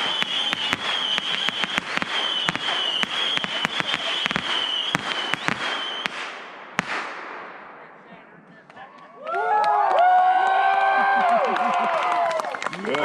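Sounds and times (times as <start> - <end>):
high whistle: 0.0 - 6.1
fireworks bangs: 0.0 - 8.9.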